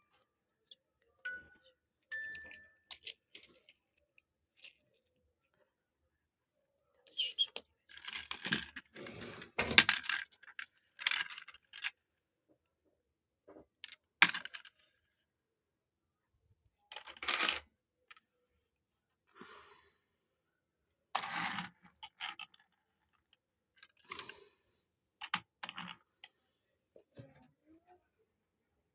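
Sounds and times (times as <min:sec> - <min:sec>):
toy vehicles clicking and clattering: 0:02.3 - 0:05.0, 0:07.4 - 0:12.0, 0:16.9 - 0:18.3, 0:21.1 - 0:24.4.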